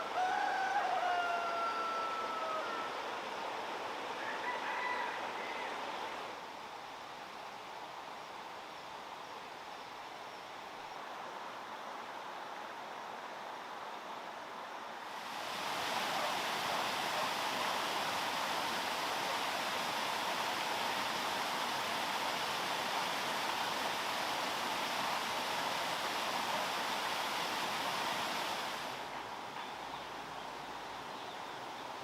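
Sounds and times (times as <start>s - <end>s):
water rushing: 15.0s - 29.5s.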